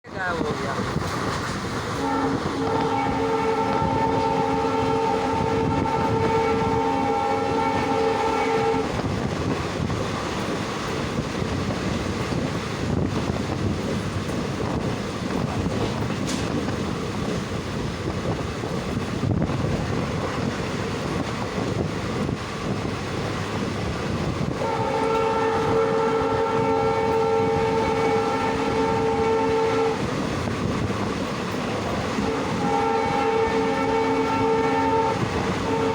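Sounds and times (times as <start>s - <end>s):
train running rumble: 0.0s - 35.9s
train horn blasts: 1.9s - 9.1s, 24.5s - 30.5s, 31.8s - 35.9s.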